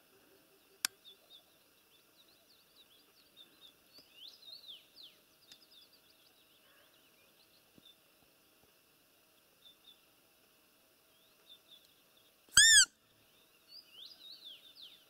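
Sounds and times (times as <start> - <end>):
faint small birds chirping: 0.0 - 15.0
rising and falling bird calls: 12.6 - 12.9.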